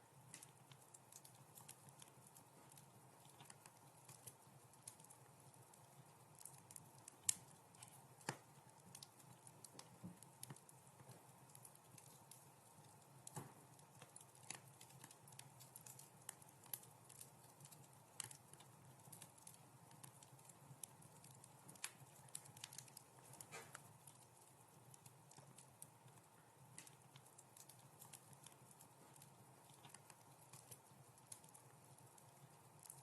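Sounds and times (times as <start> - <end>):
faint hiss of burning: 0.0 - 33.0
wood fire crackling and popping: 0.0 - 33.0.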